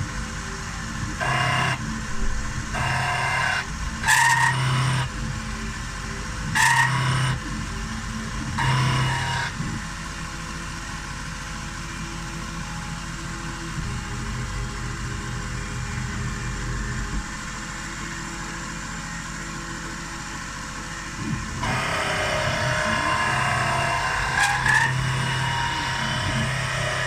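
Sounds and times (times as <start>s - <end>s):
steady machine hum: 0.0s - 27.0s
stepper motor whine: 0.0s - 27.0s.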